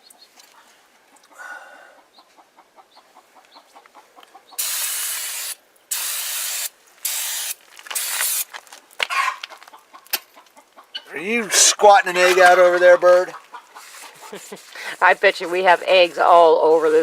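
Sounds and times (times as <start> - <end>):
aerosol can spraying: 4.6 - 8.5.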